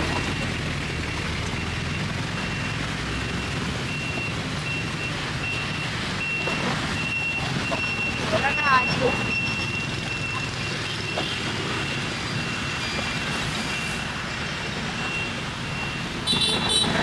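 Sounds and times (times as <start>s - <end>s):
low rumble of engine and traffic: 0.0s - 17.0s
vehicle reversing alarm beeping: 0.0s - 17.0s.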